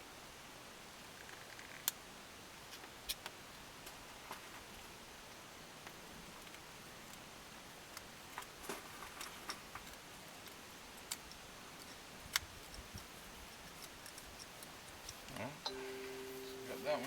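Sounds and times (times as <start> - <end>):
steady low hiss: 0.0 - 17.0
hands rustling parts: 7.9 - 15.4.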